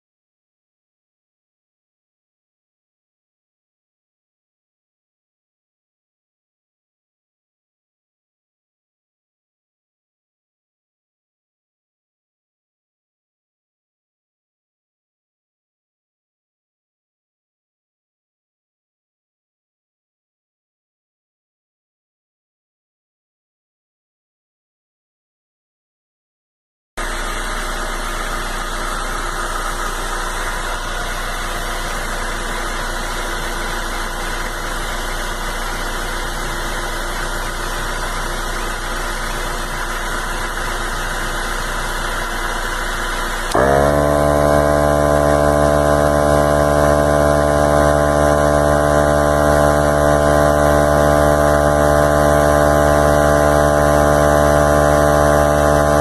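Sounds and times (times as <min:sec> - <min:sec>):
portable tire inflator running: 0:27.0 - 0:56.0.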